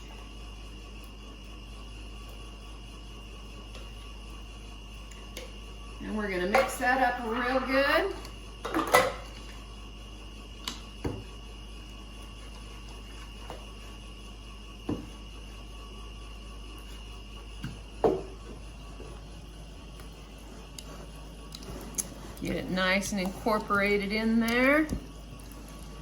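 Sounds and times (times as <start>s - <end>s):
faint background hum: 0.0s - 26.0s
spoon stirring in a bowl: 19.9s - 26.0s.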